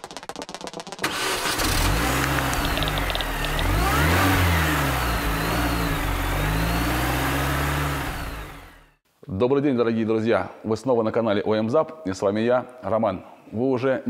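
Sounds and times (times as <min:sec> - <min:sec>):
car engine starting and revving: 0:01.0 - 0:09.0.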